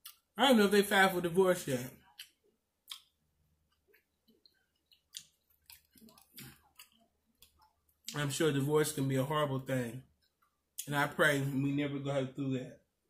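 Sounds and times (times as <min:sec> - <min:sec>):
person chewing with mouth clicks: 0:02.0 - 0:08.2.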